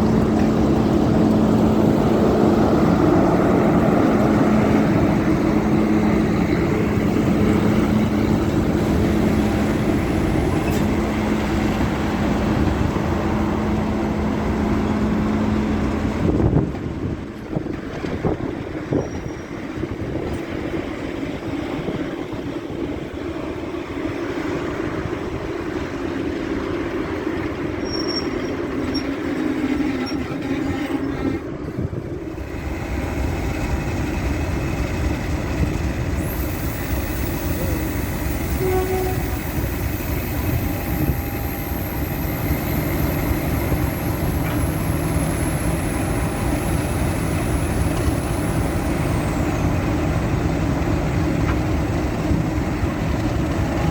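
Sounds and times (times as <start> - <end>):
diesel locomotive engines running: 0.0 - 53.9
high whine sliding down in pitch: 36.2 - 50.0.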